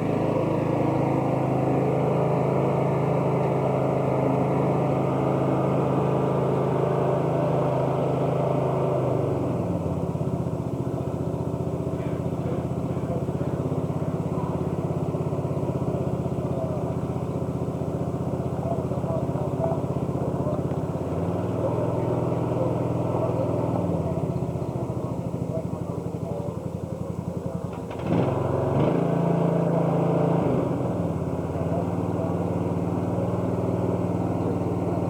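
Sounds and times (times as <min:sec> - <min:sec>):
riding lawn mower engine: 0:00.0 - 0:35.0.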